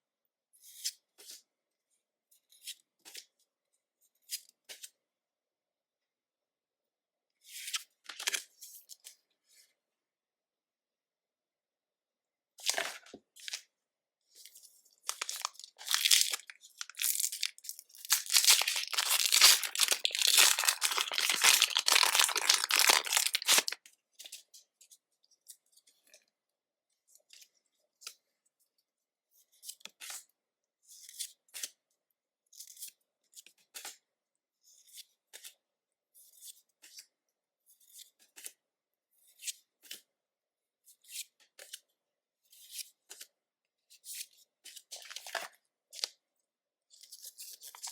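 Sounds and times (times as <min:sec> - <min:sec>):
foil wrapper tearing and crinkling: 0:15.1 - 0:23.8.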